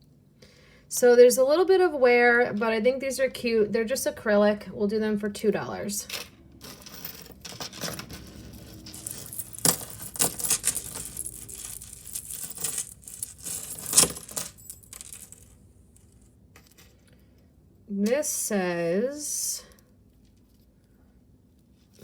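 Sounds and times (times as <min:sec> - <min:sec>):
jewelry clinking and jangling: 0:06.0 - 0:17.0.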